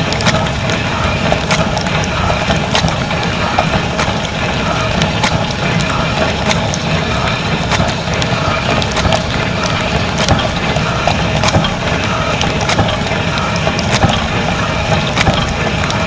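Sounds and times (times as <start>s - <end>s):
dishwasher spraying water: 0.0s - 16.0s
sharp clicks and rattles: 0.0s - 16.0s.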